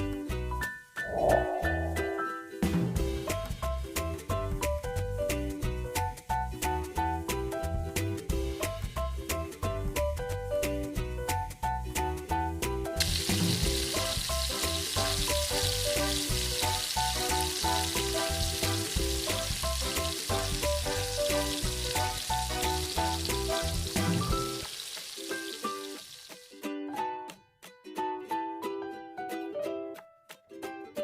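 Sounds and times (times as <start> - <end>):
background music: 0.0 - 31.0
food sizzling: 13.0 - 26.8.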